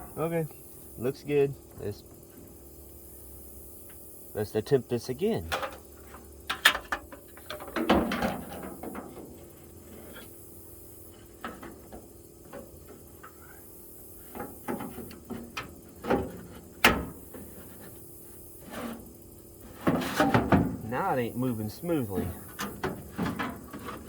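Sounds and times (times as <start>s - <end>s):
metal drawer clunks and scrapes: 5.4s - 10.4s, 11.1s - 13.0s, 14.3s - 18.0s, 18.6s - 21.1s, 21.9s - 24.0s.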